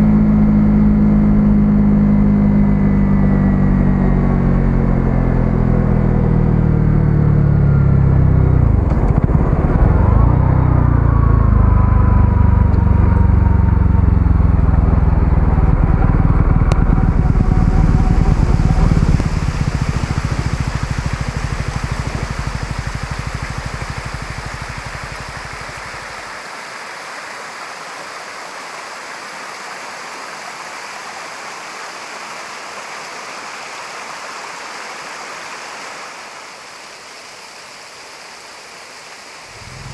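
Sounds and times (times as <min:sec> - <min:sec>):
motorcycle engine running: 0:00.0 - 0:26.3, 0:39.5 - 0:39.9
steady rushing hiss: 0:15.8 - 0:39.9.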